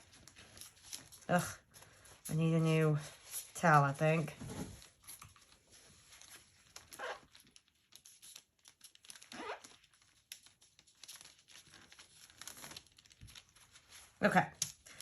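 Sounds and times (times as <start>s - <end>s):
towel crinkling and tearing: 0.0s - 2.0s, 4.8s - 15.0s.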